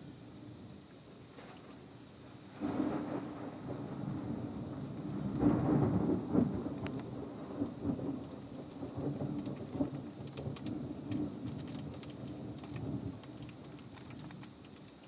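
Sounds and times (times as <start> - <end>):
raindrops ticking close by: 0.8 - 15.0
heavy rain falling: 2.4 - 15.0
rolling thunder rumble: 2.5 - 13.8.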